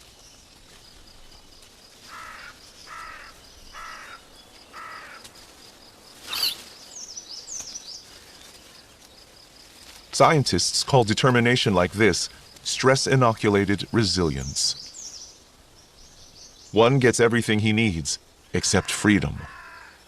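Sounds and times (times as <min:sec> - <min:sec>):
short animal calls: 0:06.2 - 0:06.7, 0:18.5 - 0:20.0
high bird chirps: 0:06.2 - 0:08.0
sharp loud high animal call: 0:06.3 - 0:06.6.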